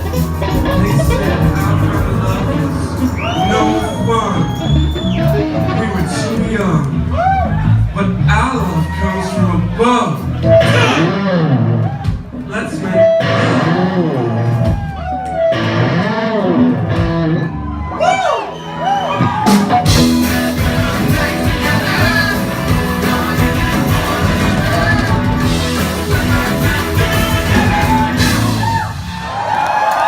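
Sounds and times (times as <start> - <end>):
electric guitar: 0.0 - 8.0, 10.2 - 30.0
live rock band: 0.0 - 30.0
person singing: 0.5 - 5.9, 19.9 - 28.7.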